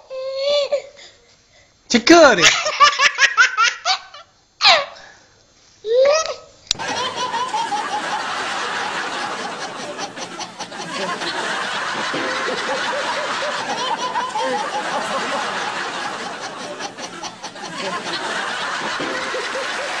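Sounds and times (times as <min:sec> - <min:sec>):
baby laughing: 0:06.7 - 0:20.0
studio audience laughing: 0:06.7 - 0:20.0.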